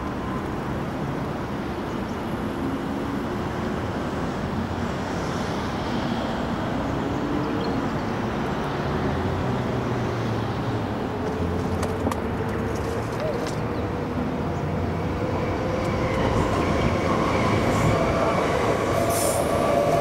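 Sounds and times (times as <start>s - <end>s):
electric train rumble: 13.9s - 20.0s.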